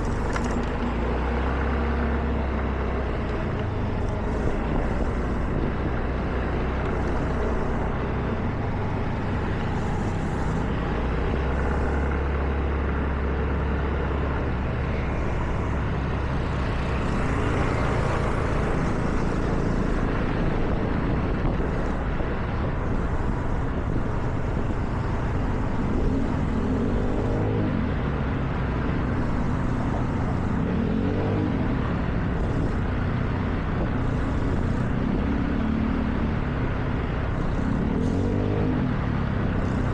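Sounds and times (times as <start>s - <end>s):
car engine: 0.0s - 39.9s
tyres hissing on wet road: 16.5s - 20.7s.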